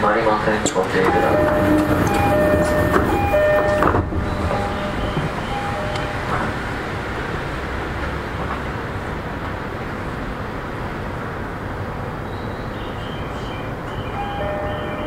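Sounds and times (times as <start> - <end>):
train interior rumble and hiss: 0.0 - 15.0.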